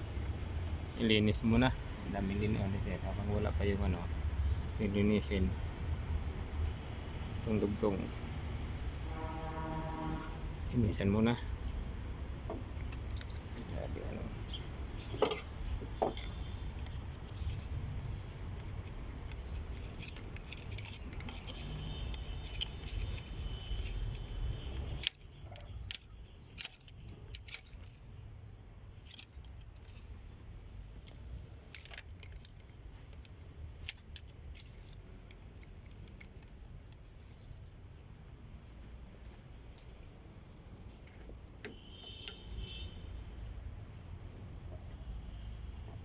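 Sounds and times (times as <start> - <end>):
metal tools clicking and scraping: 15.0 - 28.1.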